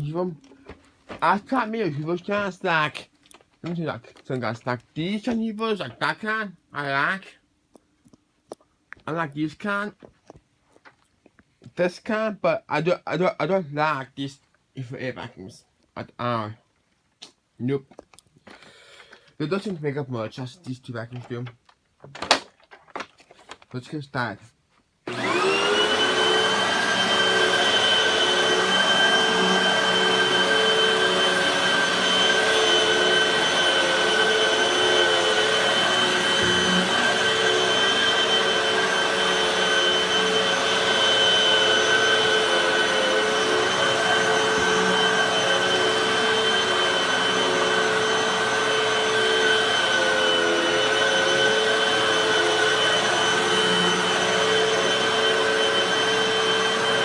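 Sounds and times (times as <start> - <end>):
vacuum cleaner motor whine: 25.1 - 57.0.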